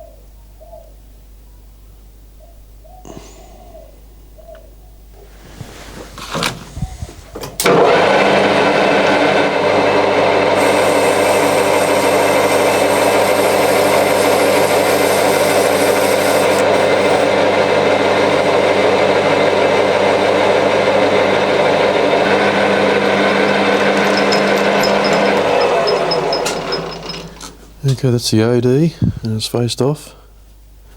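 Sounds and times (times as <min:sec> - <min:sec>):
cutting tool turning metal: 0:07.6 - 0:27.6
metal lathe humming: 0:07.6 - 0:27.6.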